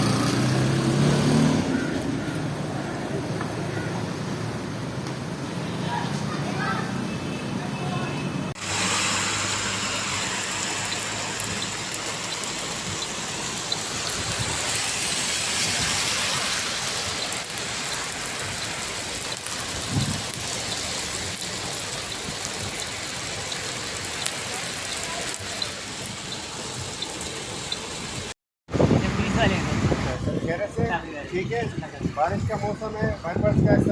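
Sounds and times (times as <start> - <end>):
heavy rain falling: 8.5 - 30.2.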